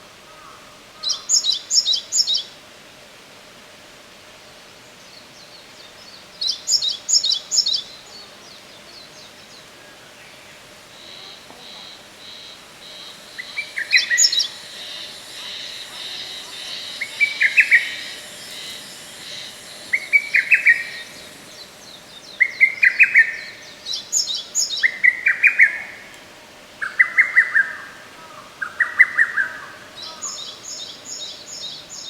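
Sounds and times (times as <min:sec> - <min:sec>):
cuckoo singing: 0:10.9 - 0:24.1.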